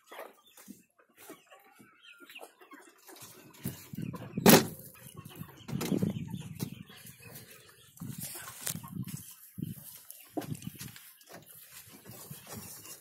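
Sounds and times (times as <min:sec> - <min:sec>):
hens clucking: 0:00.0 - 0:13.0
sharp loud knock: 0:04.5 - 0:04.7.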